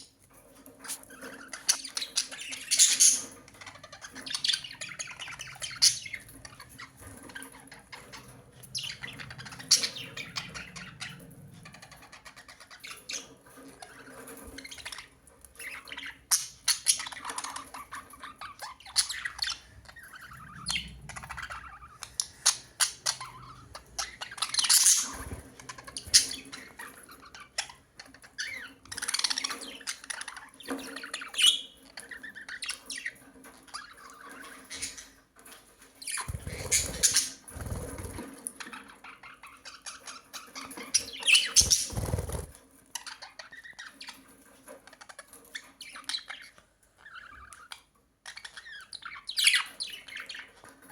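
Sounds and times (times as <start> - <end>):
bird squawks and chirps: 0.8 - 35.2, 36.0 - 44.3
budgerigars chattering: 0.9 - 13.4, 15.6 - 27.8, 36.1 - 38.2, 40.6 - 42.5.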